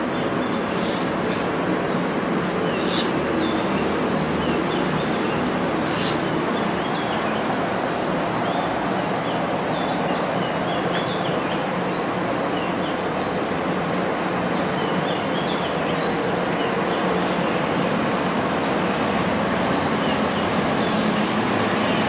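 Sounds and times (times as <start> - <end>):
small birds chirping: 2.6 - 13.0.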